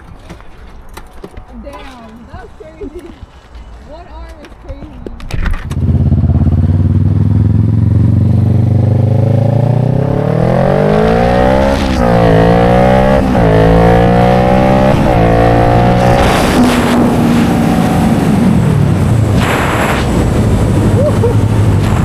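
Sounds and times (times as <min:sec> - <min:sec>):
vehicle engine accelerating: 0:05.6 - 0:22.0.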